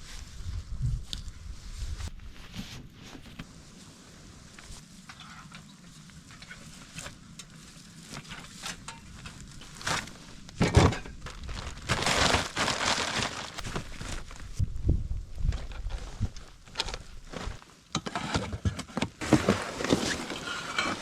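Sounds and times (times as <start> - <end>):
crunching and crumpling: 7.6 - 14.6
small crackles: 11.2 - 17.8.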